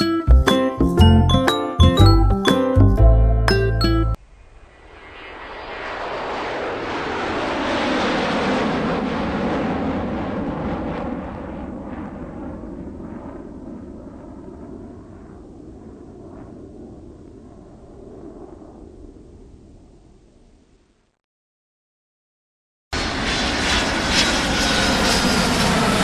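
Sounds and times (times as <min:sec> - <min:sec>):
aeroplane passing by: 0:04.2 - 0:20.0, 0:23.0 - 0:26.0.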